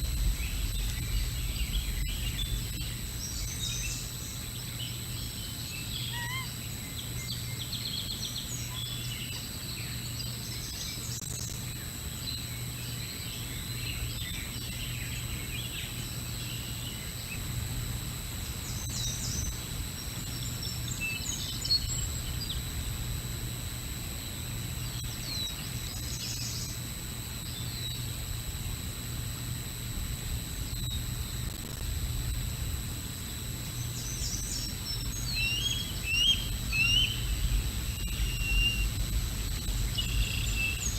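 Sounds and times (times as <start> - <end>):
low outdoor rumble: 0.0 - 4.6, 28.2 - 40.9
birds chirping and calling: 5.8 - 6.6, 34.2 - 39.0.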